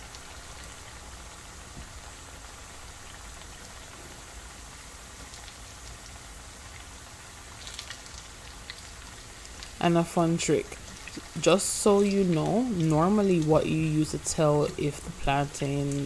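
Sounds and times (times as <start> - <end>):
plantain sizzling in hot oil: 0.0 - 16.0.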